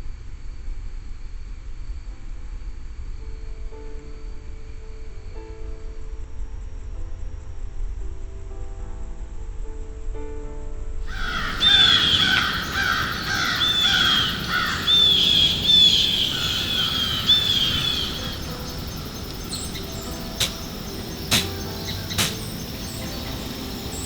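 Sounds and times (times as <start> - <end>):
flock of birds calling: 11.1 - 24.0
sharp clicks: 19.3 - 22.8.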